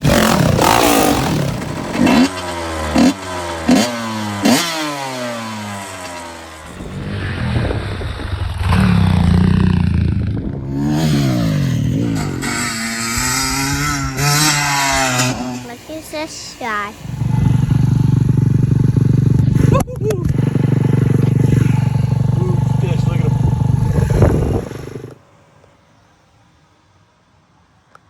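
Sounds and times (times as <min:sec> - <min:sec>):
two-stroke engine revving: 0:00.0 - 0:25.2.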